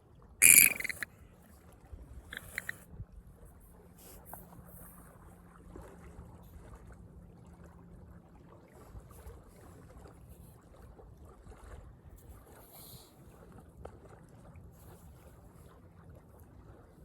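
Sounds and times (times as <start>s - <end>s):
faint wind: 0.0s - 17.0s
water noise: 0.4s - 1.2s, 2.2s - 2.8s.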